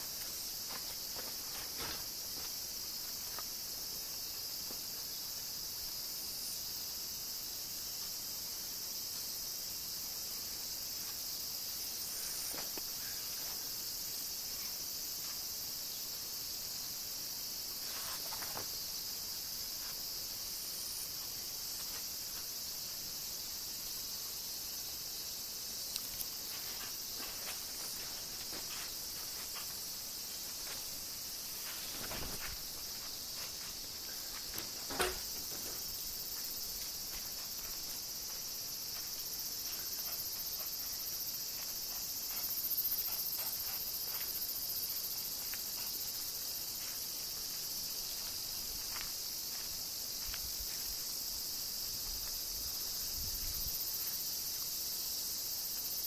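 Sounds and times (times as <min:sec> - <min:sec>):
insects chirping: 0:00.0 - 0:56.0
soft knocks and clicks: 0:34.5 - 0:35.8.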